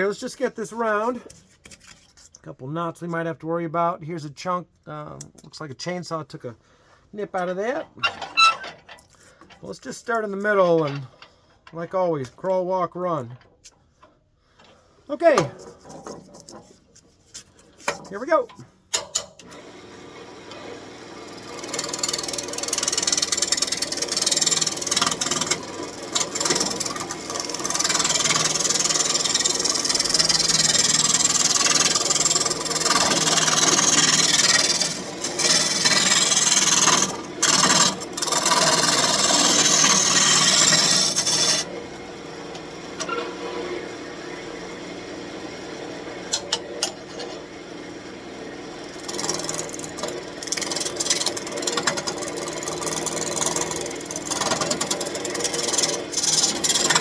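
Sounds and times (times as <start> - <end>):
lathe tool scraping wood: 19.5 - 57.0
wood lathe humming: 19.5 - 57.0.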